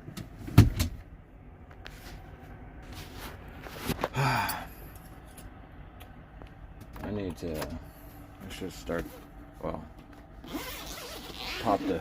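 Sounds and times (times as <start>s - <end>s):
man sighing: 4.0s - 4.9s.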